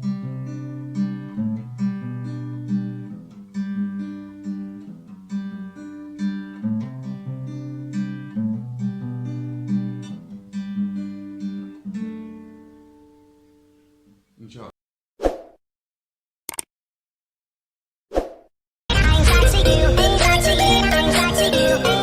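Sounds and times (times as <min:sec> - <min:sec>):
guitar chords ringing: 0:00.0 - 0:14.1, 0:18.9 - 0:22.0.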